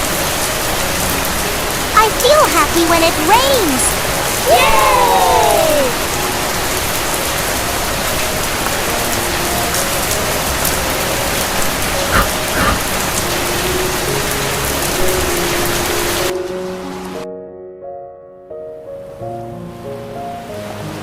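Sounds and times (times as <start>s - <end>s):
heavy rain: 0.0s - 16.4s.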